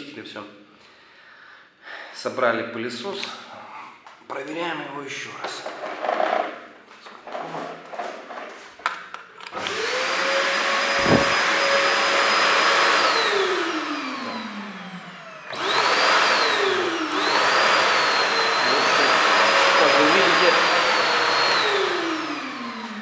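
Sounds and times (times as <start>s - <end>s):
vacuum cleaner motor whine: 9.5s - 23.0s.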